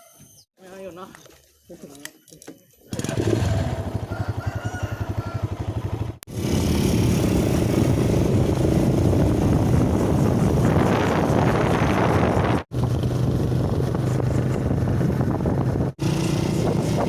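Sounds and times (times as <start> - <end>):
motorcycle engine running: 2.9 - 17.0.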